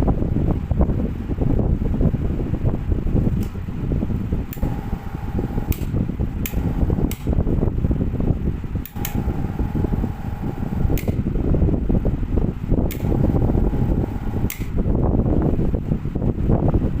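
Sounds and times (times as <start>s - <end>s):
ceiling fan air noise: 0.0s - 17.0s
faint high hum: 4.1s - 15.6s
sharp ticks: 4.5s - 7.4s, 8.8s - 11.2s, 12.9s - 14.8s.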